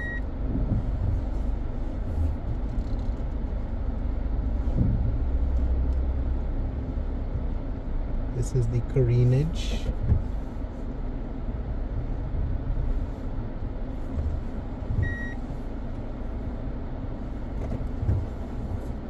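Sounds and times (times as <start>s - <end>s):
high beep: 0.0s - 0.2s
car road and engine noise: 0.0s - 19.0s.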